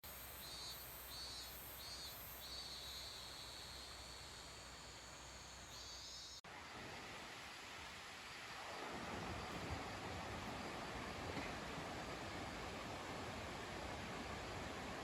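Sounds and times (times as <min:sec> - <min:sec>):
insects singing in pulses: 0:00.1 - 0:06.4.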